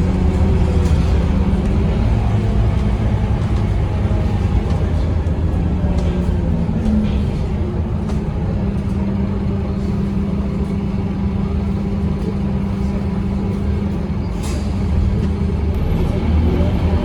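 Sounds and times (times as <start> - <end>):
diesel bus engine running: 0.0 - 17.0.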